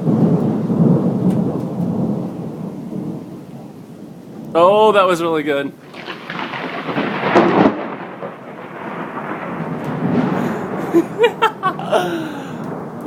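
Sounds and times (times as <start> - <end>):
rain hissing: 0.0 - 13.0
thunder rumbling: 0.0 - 13.0
hail falling: 4.3 - 13.0.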